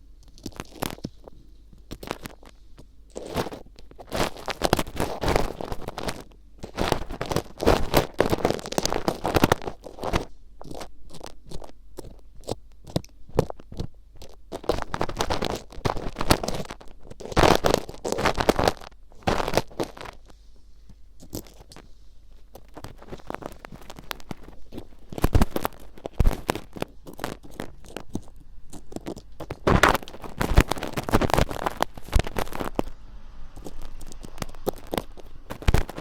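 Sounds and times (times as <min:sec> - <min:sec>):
ear pick scraping microphone: 0:21.2 - 0:36.0.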